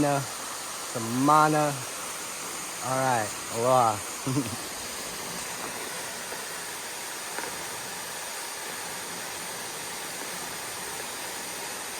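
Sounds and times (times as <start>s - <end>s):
waterfall and stream rushing: 0.0s - 11.9s.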